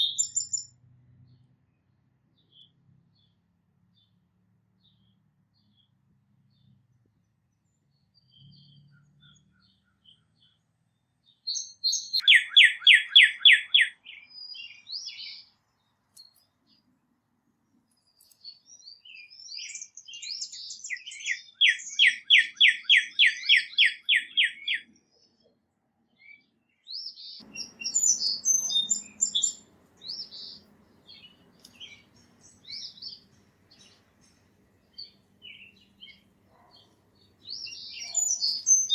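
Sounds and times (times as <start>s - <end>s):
bird chirps and calls: 0.0s - 0.7s, 11.2s - 15.6s, 18.0s - 25.5s, 26.2s - 38.9s
songbird trills: 0.0s - 0.8s, 7.6s - 16.9s, 17.7s - 38.9s.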